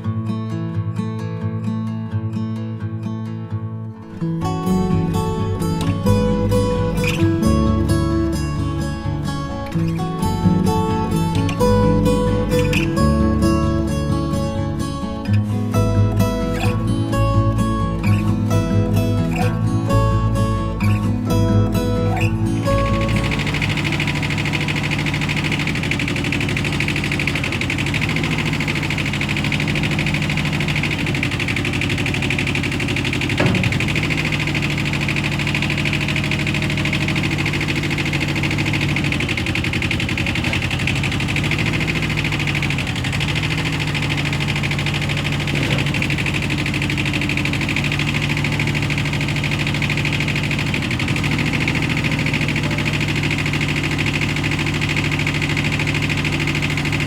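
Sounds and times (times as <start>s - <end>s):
tractor diesel engine running: 4.6s - 15.2s, 22.2s - 57.0s
sharp knock: 32.9s - 34.1s.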